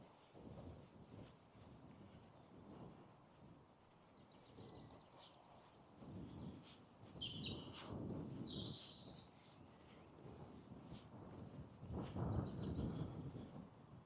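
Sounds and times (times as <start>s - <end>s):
soft low rustle: 0.0s - 14.0s.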